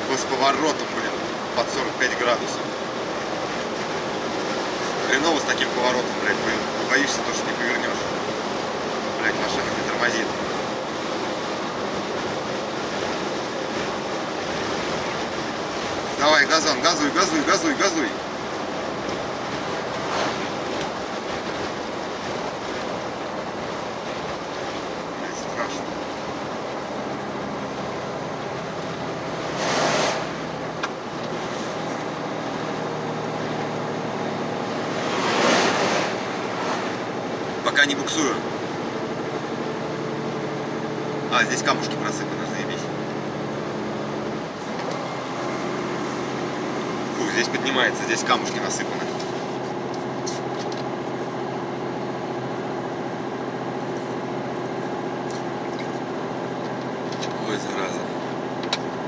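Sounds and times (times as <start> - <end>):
truck diesel engine pulling uphill: 0.0 - 59.0
loud whooshing: 18.7 - 21.3, 29.1 - 30.8, 34.6 - 38.5.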